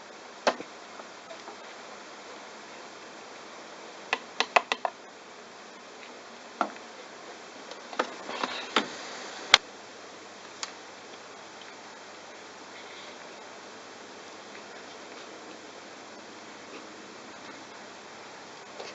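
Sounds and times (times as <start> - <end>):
sharp clicks and knocks: 4.1 - 5.0.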